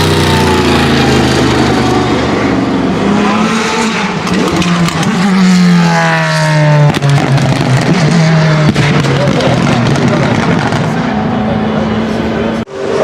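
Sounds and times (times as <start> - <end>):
race car engine roaring: 0.0 - 13.0.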